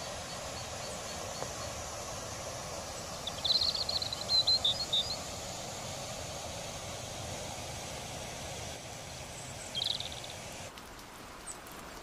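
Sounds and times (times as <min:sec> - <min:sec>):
rushing outdoor noise: 0:00.0 - 0:12.0
bird chirping: 0:02.9 - 0:05.3, 0:09.4 - 0:10.7.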